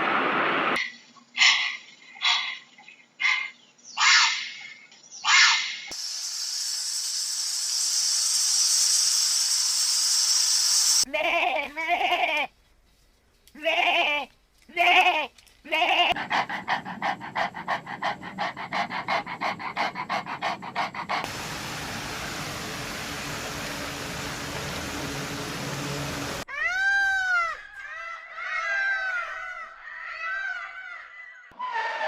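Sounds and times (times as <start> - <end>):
steady hiss: 6.0 - 11.1, 19.8 - 26.5
fast pulsing animal call: 16.1 - 21.3.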